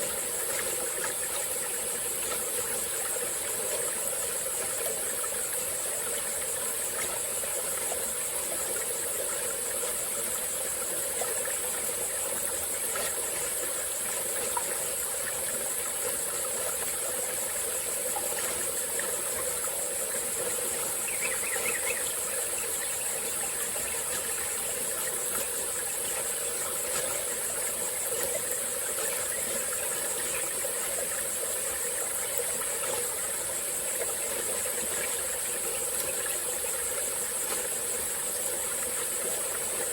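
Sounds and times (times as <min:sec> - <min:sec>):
insects chirring: 0:00.0 - 0:39.9
stream trickling: 0:00.0 - 0:39.9
faint chirp: 0:20.5 - 0:25.5.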